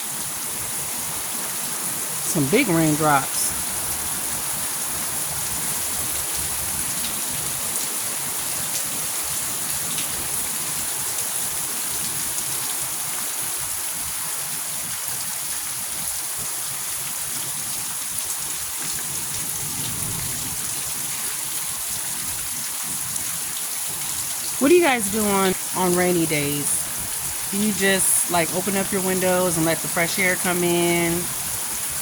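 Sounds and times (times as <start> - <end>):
heavy rain hissing: 19.1 - 22.4, 24.5 - 32.0.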